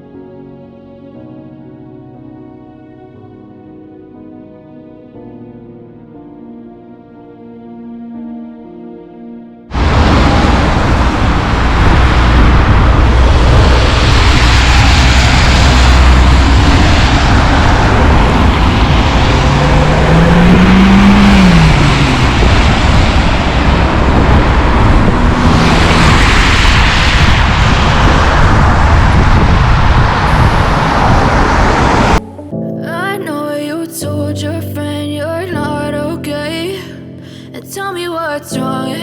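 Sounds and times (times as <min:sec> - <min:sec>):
vehicle rumble and hiss: 0:09.7 - 0:32.4
rising and falling tone: 0:09.7 - 0:33.7.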